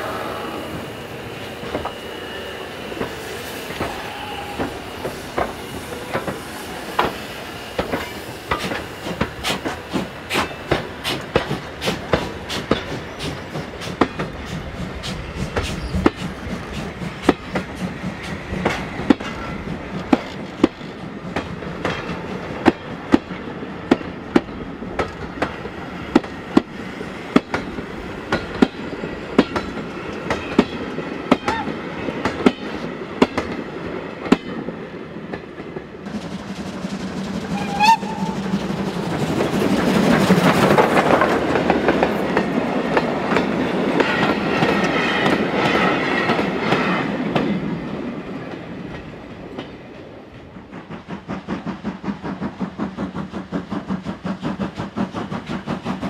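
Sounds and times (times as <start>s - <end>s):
steam train rolling rumble: 0.0s - 56.0s
wheels clacking over rail joints: 3.0s - 47.6s.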